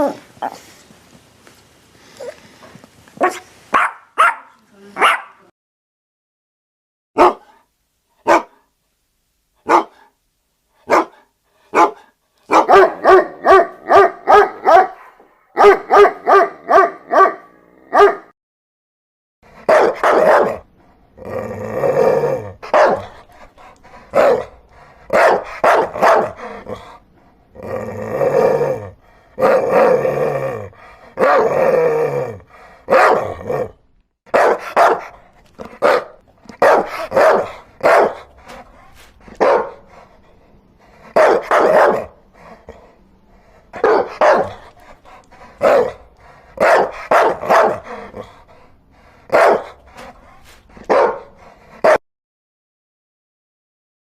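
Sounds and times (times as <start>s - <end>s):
dogs barking: 3.2s - 5.4s, 7.2s - 7.5s, 8.3s - 8.6s, 9.7s - 10.0s, 10.9s - 18.3s, 19.6s - 20.7s, 22.6s - 23.2s, 24.1s - 26.6s, 32.9s - 33.4s, 34.3s - 38.6s, 39.3s - 39.9s, 41.1s - 42.2s, 43.7s - 44.9s, 45.6s - 48.2s, 49.3s - 50.1s, 50.8s - 52.0s.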